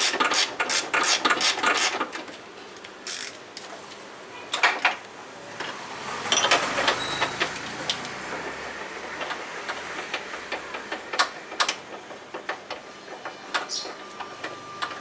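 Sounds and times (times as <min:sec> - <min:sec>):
ratchet-like mechanical clicking: 0:00.0 - 0:02.0, 0:03.0 - 0:03.4
sharp metallic clicks and knocks: 0:06.3 - 0:15.0.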